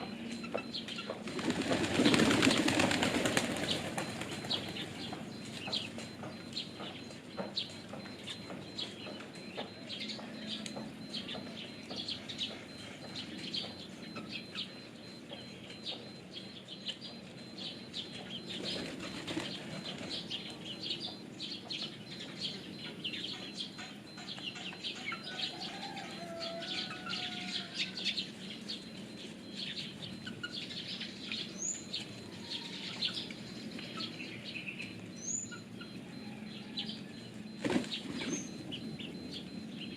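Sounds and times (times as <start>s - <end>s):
pigeon wings flapping: 1.2s - 4.9s.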